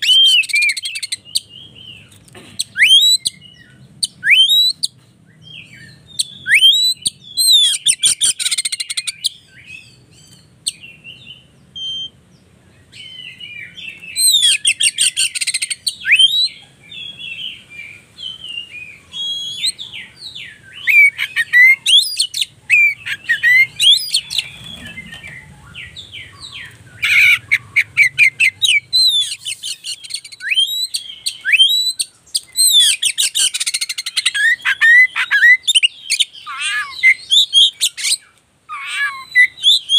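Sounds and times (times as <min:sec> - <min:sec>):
magpie-robin singing whistled notes: 0:00.0 - 0:39.9
bird rattling trills: 0:22.8 - 0:26.0.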